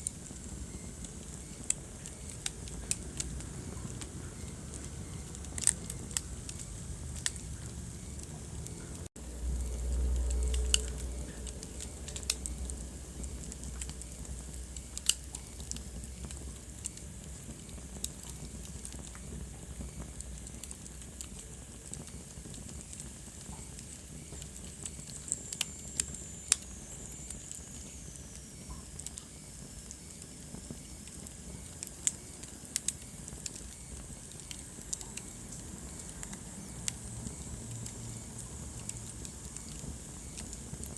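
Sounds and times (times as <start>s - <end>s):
wood fire crackling and popping: 0.0s - 40.9s
low rumble: 2.8s - 15.0s.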